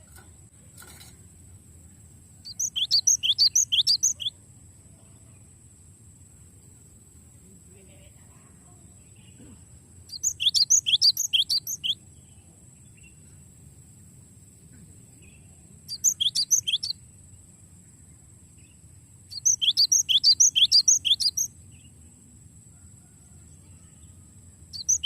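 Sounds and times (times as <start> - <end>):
bird whistling song: 2.4 - 4.4, 10.1 - 12.0, 15.3 - 17.0, 19.3 - 21.9, 24.8 - 25.0.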